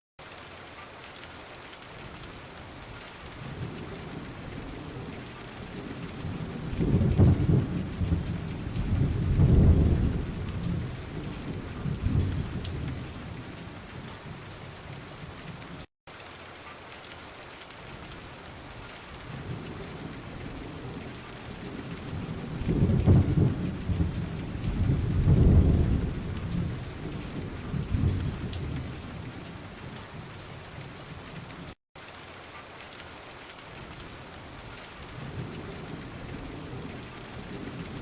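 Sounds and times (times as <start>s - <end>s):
steady rain: 0.2s - 38.0s
rolling thunder: 3.4s - 15.3s, 19.2s - 30.3s, 35.1s - 38.0s.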